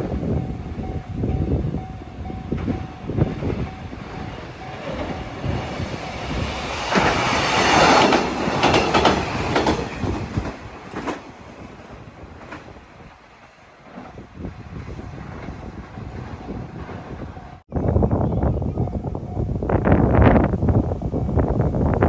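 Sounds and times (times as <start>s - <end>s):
train wheels clattering: 0.1s - 14.2s.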